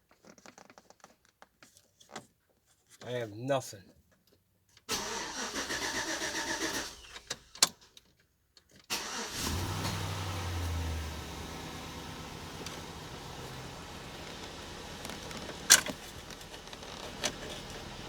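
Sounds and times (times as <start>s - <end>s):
starter cranking engine: 4.9s - 7.8s, 8.9s - 18.0s
pickup engine idling: 8.9s - 18.0s
starter clicks: 12.5s - 18.0s.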